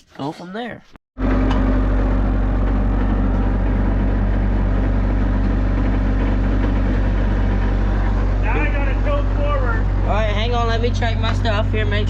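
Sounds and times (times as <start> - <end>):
engine idling: 1.2 - 12.0.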